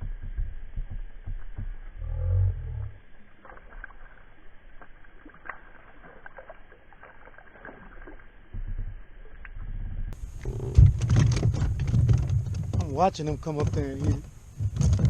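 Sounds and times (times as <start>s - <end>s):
low bumps: 0.0s - 6.2s, 7.6s - 15.0s
hollow thump in kayak: 8.5s - 15.0s.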